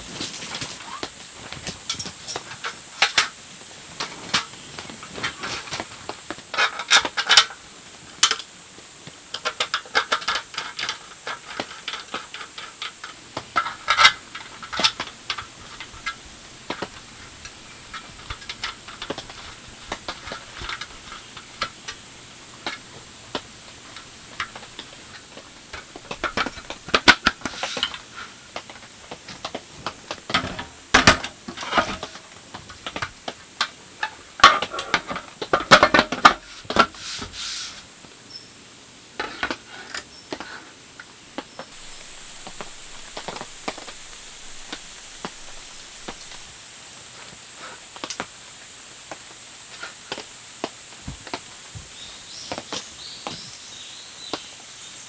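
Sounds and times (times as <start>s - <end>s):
rain hissing: 7.1s - 39.6s, 41.7s - 53.4s
cookware and utensils clinking: 13.6s - 28.4s.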